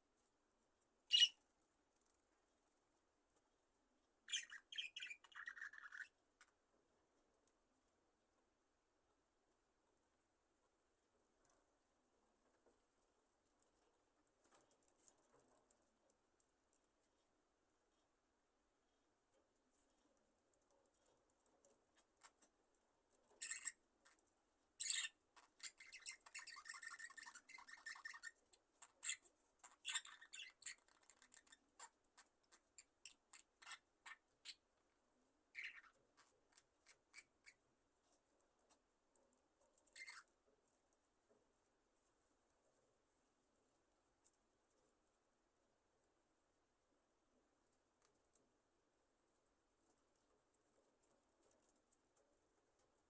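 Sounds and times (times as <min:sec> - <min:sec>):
budgies clicking and rustling: 0:01.0 - 0:03.5, 0:04.3 - 0:07.7, 0:12.4 - 0:17.0, 0:19.7 - 0:34.9, 0:35.5 - 0:41.4, 0:49.3 - 0:53.0
budgerigars chirping and clicking: 0:01.1 - 0:01.4, 0:04.3 - 0:06.5, 0:23.4 - 0:23.8, 0:24.8 - 0:34.6, 0:35.6 - 0:37.6, 0:39.9 - 0:40.3.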